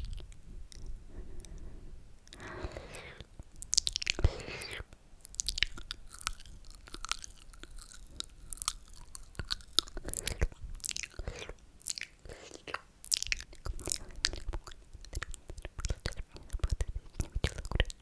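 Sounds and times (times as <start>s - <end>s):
lip and tongue clicks: 2.2s - 18.0s
wet mouth slurping: 2.4s - 3.3s, 4.0s - 4.9s.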